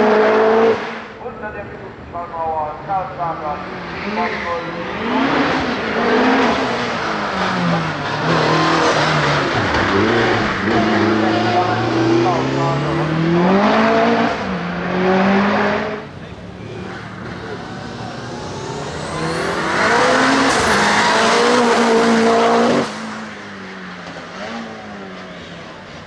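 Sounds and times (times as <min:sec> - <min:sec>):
turbocharged car engine at full throttle: 0:00.0 - 0:01.2, 0:03.5 - 0:26.0.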